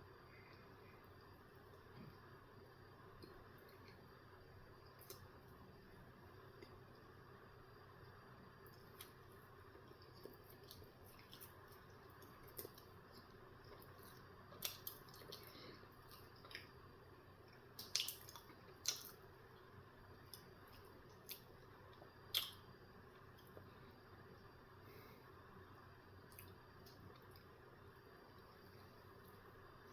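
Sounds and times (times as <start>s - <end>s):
wet mouth clicks from chewing: 17.8s - 19.2s.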